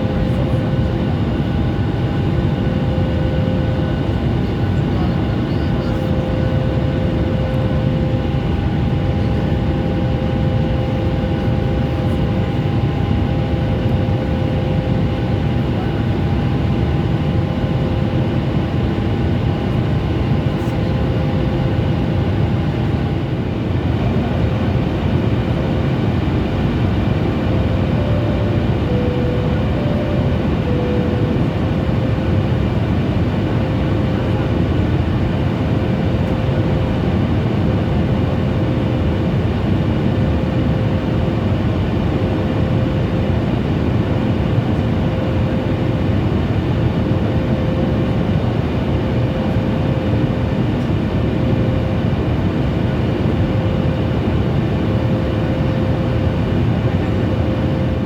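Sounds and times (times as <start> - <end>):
faint steady whine: 24.1 - 37.0
jet cabin airflow rush: 25.0 - 34.4.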